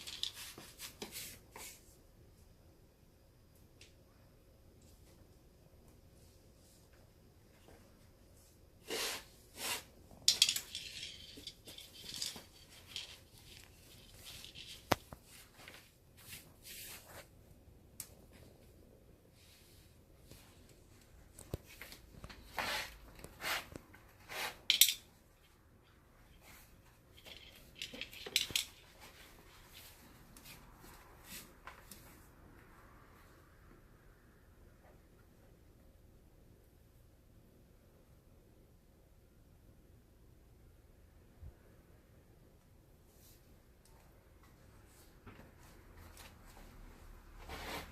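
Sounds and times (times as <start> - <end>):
scraping and rustling: 8.8 - 17.4, 44.9 - 47.9.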